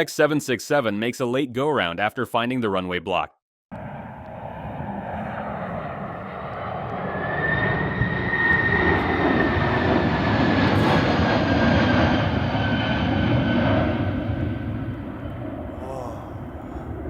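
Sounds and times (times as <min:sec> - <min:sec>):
jet engines roaring: 0:03.8 - 0:17.0.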